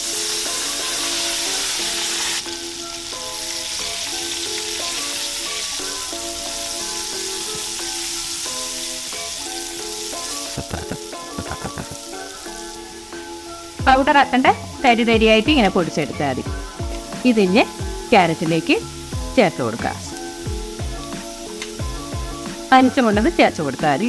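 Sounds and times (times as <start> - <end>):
background music: 0.0 - 24.0
carrots sizzling in hot oil: 0.0 - 24.0.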